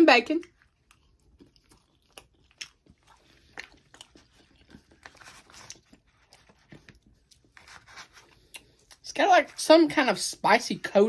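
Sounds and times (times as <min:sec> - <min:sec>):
chewing with wet mouth smacks: 0:00.4 - 0:07.6, 0:08.3 - 0:09.0.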